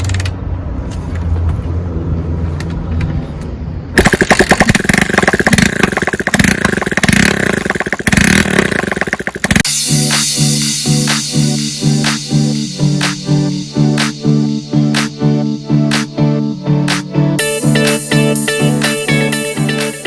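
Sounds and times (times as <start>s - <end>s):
motorcycle engine revving: 4.0s - 9.7s
music: 9.6s - 20.0s.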